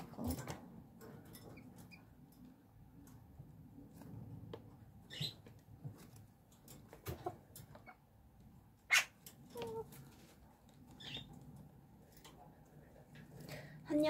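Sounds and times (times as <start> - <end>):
small chickens chirping: 8.8 - 11.6.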